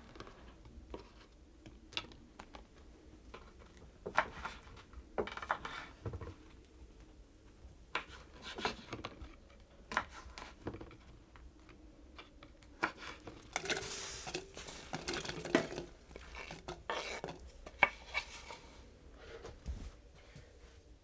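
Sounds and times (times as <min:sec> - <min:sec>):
dishes and utensils clinking: 0:13.2 - 0:18.7.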